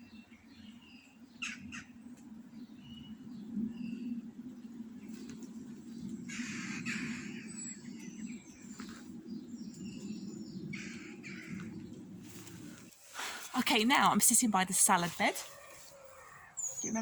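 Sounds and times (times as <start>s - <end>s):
birds harsh rasping calls: 1.4s - 1.9s, 6.2s - 7.9s, 10.6s - 11.9s.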